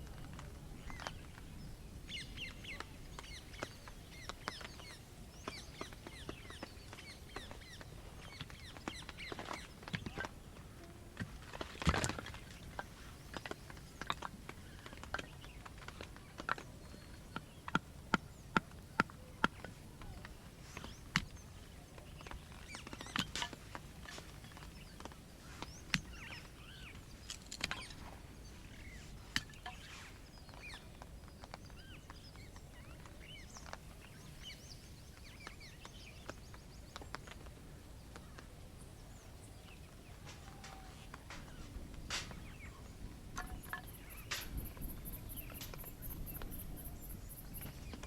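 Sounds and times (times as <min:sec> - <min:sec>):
birds chirping and singing: 0:12.6 - 0:37.4, 0:38.2 - 0:48.0.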